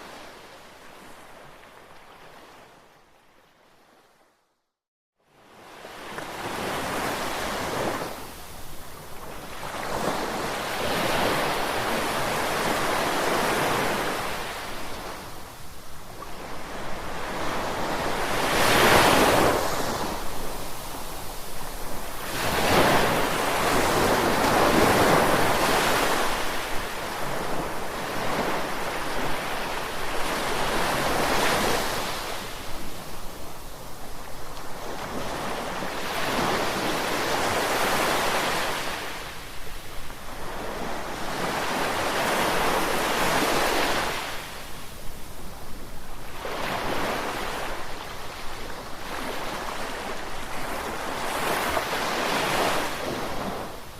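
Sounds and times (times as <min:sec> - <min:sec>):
ocean waves breaking: 0:16.1 - 0:33.0.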